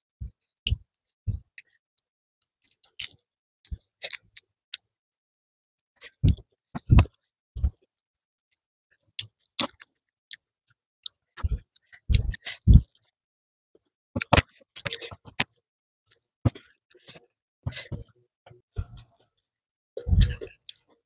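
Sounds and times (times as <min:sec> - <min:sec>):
chewing wet clicks and smacks: 0:02.6 - 0:04.2, 0:09.2 - 0:10.4.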